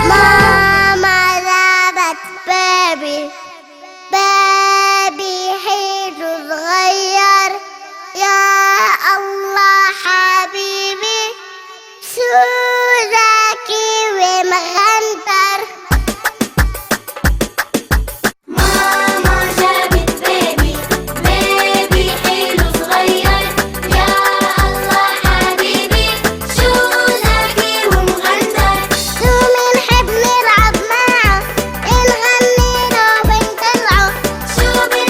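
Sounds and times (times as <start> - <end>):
girl singing: 0.0 - 16.4, 26.6 - 35.0.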